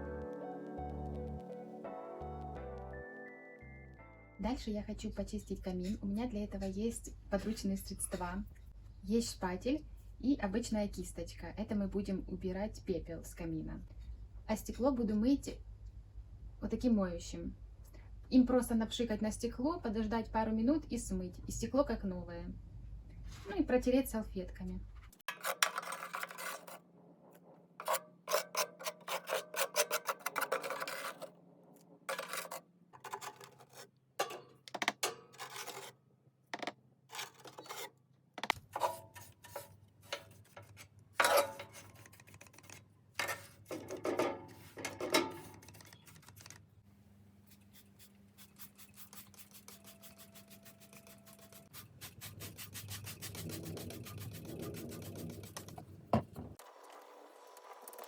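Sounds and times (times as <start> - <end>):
putty knife scraping ash: 25.2 - 26.8, 27.8 - 31.3, 32.1 - 36.0, 36.6 - 43.7.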